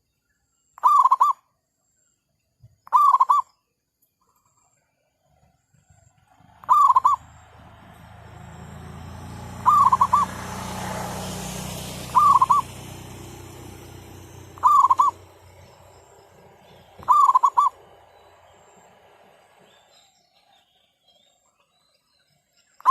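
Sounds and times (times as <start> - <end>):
dove cooing: 0.8 - 1.4, 2.9 - 3.4, 6.4 - 7.9, 9.3 - 10.8, 11.9 - 18.0.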